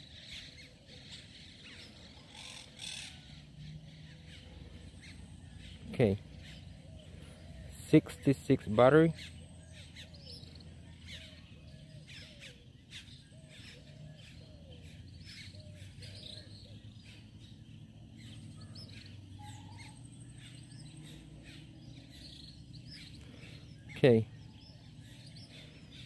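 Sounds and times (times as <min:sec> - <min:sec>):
low steady hum: 0:00.0 - 0:26.0
faint bird call: 0:18.2 - 0:26.0.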